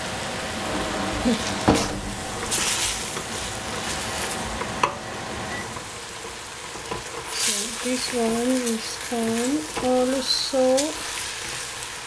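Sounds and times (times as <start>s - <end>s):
scraping hiss: 0.0s - 4.6s
greens sizzling in a pot: 2.2s - 12.0s.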